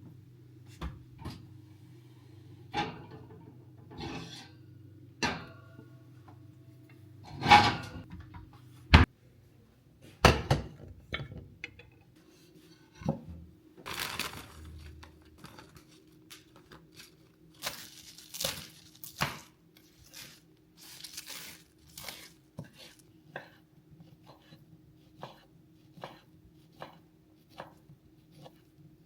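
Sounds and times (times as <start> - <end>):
low steady hum: 0.0 - 29.0
dishes knocking and clinking: 10.2 - 12.0.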